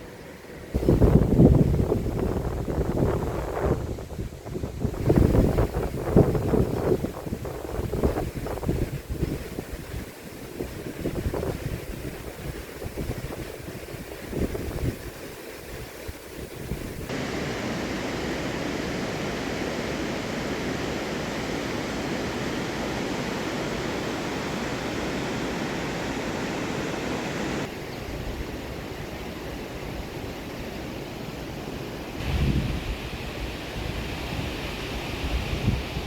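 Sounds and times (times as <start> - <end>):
heavy water rushing: 0.0 - 36.0.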